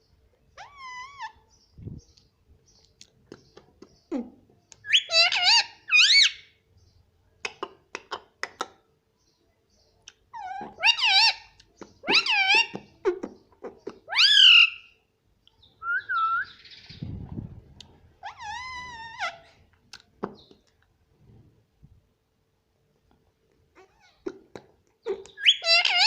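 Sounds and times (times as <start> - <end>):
parrot calling: 0.6 - 1.4, 4.8 - 6.5, 10.3 - 15.0, 15.8 - 16.8, 18.2 - 19.6, 25.0 - 26.0.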